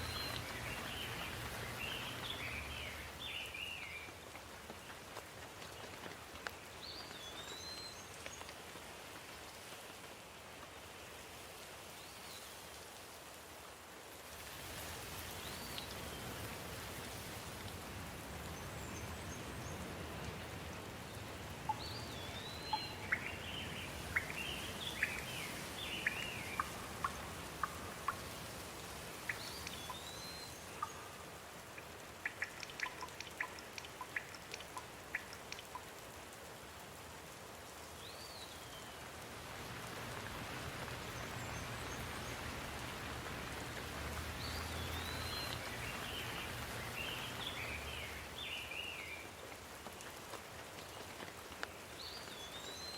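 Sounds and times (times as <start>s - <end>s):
songbirds singing: 0.0s - 4.2s, 18.4s - 35.9s, 40.9s - 49.3s
sharp drip-like ticks: 0.0s - 10.7s, 14.4s - 52.9s
steady rain falling: 0.0s - 52.9s.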